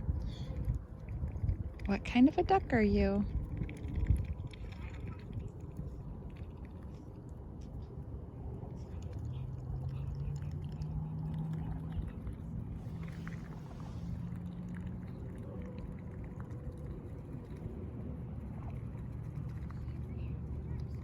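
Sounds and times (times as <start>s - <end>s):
low engine-like hum: 0.0s - 21.0s.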